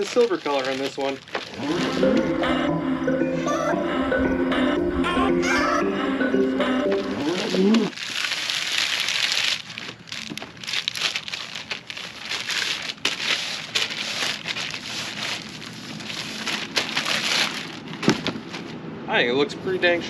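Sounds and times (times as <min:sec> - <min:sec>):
packaging rustling and crinkling: 0:00.0 - 0:02.2, 0:07.2 - 0:18.8
music: 0:01.8 - 0:07.8.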